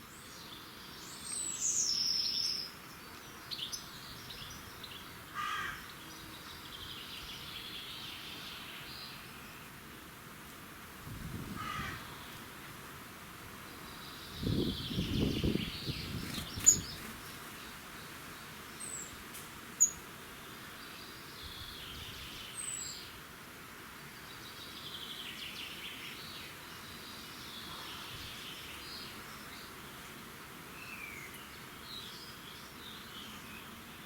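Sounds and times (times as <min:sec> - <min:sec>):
steady outdoor hiss: 0:00.0 - 0:34.0
birds singing: 0:13.7 - 0:17.1.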